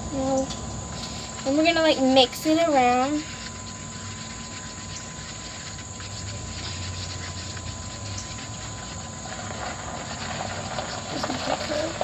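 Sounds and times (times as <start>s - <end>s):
low hum and hiss: 0.0s - 12.0s
spoons scraping in a bowl: 0.2s - 12.0s.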